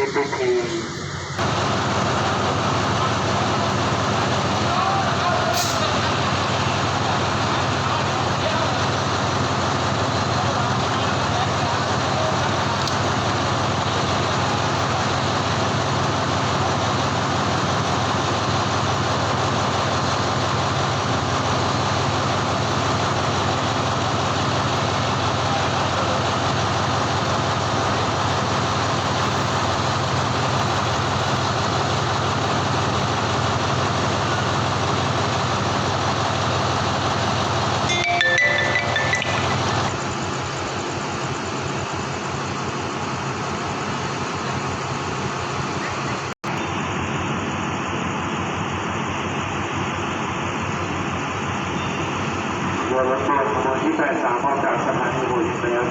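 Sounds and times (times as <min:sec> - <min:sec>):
diesel locomotive idling: 0:00.0 - 0:55.9
higher tones: 0:37.9 - 0:40.0.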